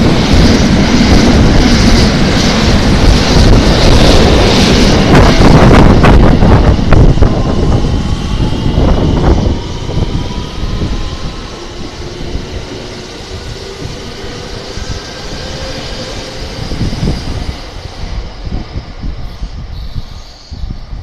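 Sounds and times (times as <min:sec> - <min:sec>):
rush of train wheels on rail: 0:00.0 - 0:21.0
train rumble with steady whines: 0:00.0 - 0:21.0.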